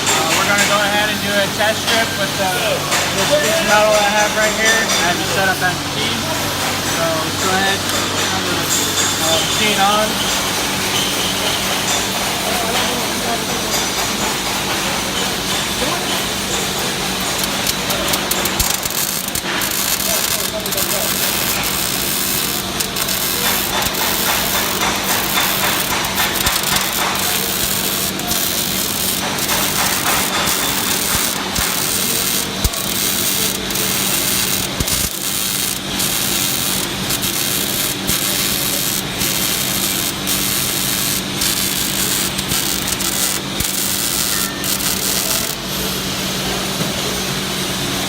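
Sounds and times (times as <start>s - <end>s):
welding arc crackling: 16.4s - 46.0s
steady hum: 16.5s - 46.7s.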